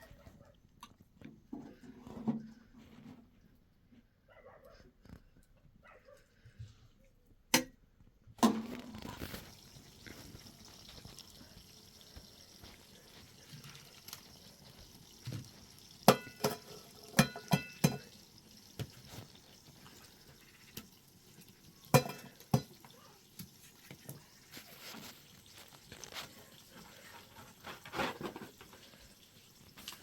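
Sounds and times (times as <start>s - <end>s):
faint liquid sounds: 8.4s - 30.0s.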